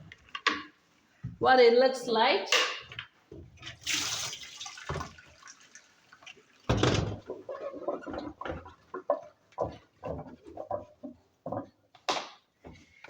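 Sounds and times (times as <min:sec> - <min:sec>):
water splashing and pouring: 0:03.6 - 0:10.9
handling knocks and clatter: 0:06.7 - 0:12.8.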